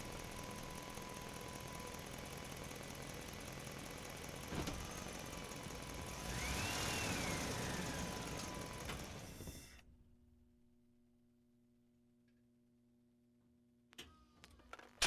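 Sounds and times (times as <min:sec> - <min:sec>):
engine running: 0:00.0 - 0:09.5.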